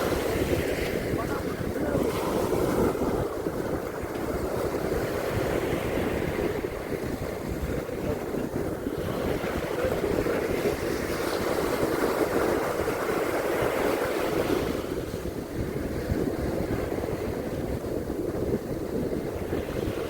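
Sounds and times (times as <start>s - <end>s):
sea waves washing onto beach: 0.0s - 20.0s
wind buffeting microphone: 0.0s - 20.0s.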